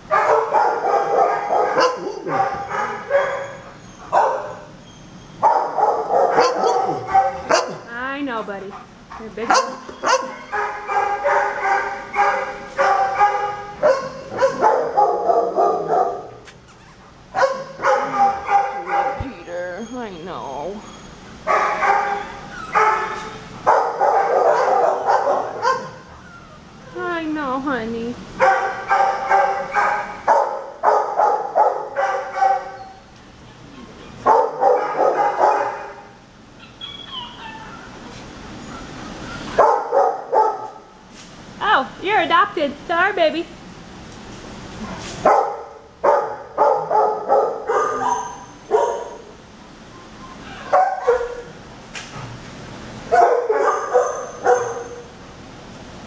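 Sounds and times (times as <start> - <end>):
dogs barking: 0.0 - 7.9, 8.7 - 16.4, 17.2 - 20.1, 21.3 - 26.2, 28.4 - 38.1, 38.8 - 41.0, 44.8 - 49.4, 50.5 - 51.7, 53.1 - 55.2
dog whining: 1.7 - 7.8, 9.6 - 11.7, 15.6 - 23.6, 24.4 - 27.0, 32.6 - 35.8, 36.5 - 39.8, 47.7 - 49.3, 49.9 - 51.5, 53.7 - 55.1.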